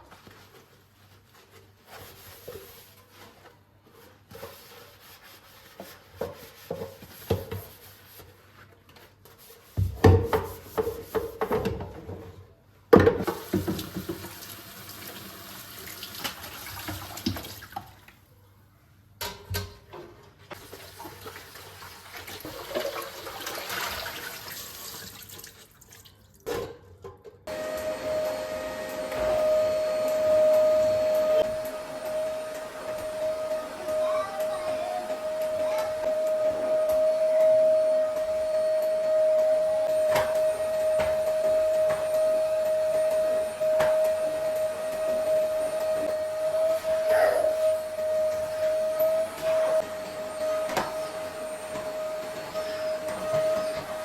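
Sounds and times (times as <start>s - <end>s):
appliance motor hum: 27.5s - 54.0s.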